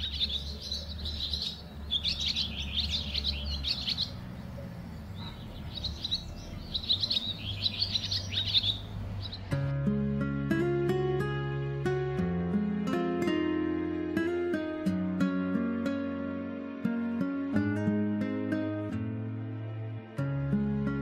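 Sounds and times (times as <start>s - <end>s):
small birds twittering: 0.0s - 9.7s
acoustic guitar music: 0.0s - 21.0s.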